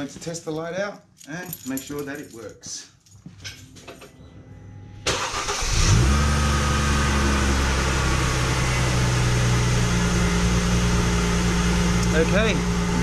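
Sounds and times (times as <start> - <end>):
car engine cranking: 5.0 - 13.0
car engine idling: 5.0 - 13.0.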